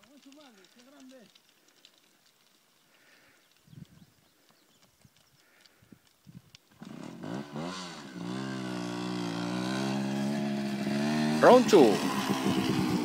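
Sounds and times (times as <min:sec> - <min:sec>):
motorcycle engine revving: 0:06.7 - 0:13.0.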